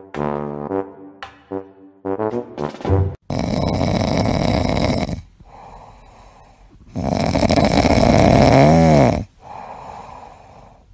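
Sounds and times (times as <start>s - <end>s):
puppy snoring: 3.3s - 10.6s
quiet breathing: 3.4s - 10.9s.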